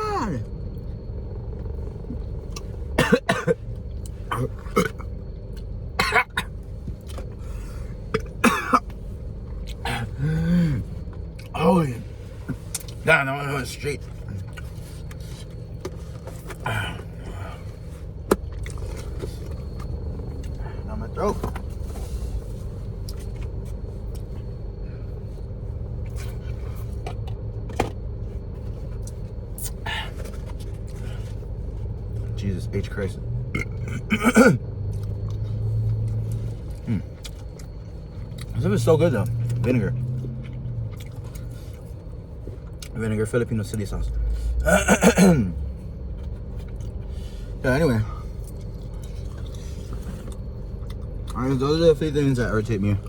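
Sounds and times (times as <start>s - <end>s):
steady low rumble: 0.0s - 53.0s
woman coughing: 3.0s - 3.6s, 6.0s - 6.5s, 8.2s - 8.8s, 33.6s - 34.6s, 44.6s - 45.5s
chewing: 14.0s - 20.8s, 34.8s - 38.6s, 39.2s - 43.0s, 46.2s - 47.3s, 48.3s - 51.4s.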